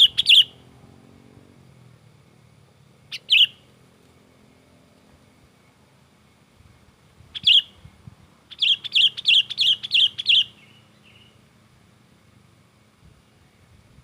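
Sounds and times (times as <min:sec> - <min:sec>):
bulbul agitated calls: 0:00.0 - 0:00.6, 0:03.1 - 0:03.7, 0:07.3 - 0:11.4.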